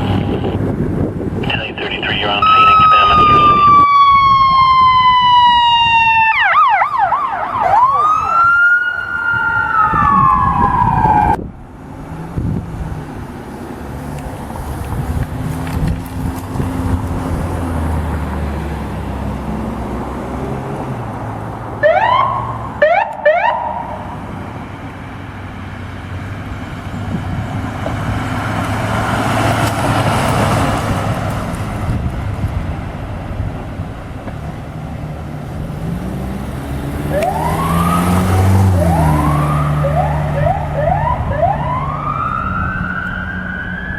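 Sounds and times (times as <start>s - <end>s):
emergency vehicle siren: 0.0s - 0.7s, 2.0s - 11.4s, 21.8s - 25.0s, 35.8s - 43.9s
engine and road noise: 0.0s - 43.9s
short rising siren whoops: 2.4s - 11.4s, 37.1s - 43.9s.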